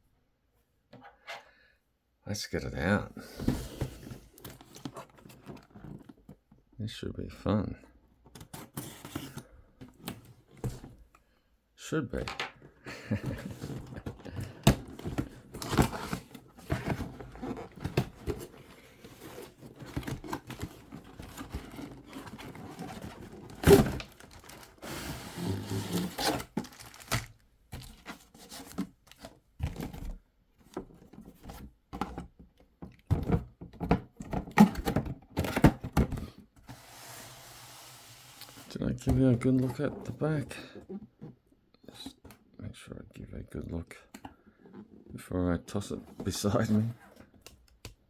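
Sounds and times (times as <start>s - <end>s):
cardboard box knocks and scrapes: 13.2s - 28.9s
plastic packaging rustling: 13.2s - 29.8s.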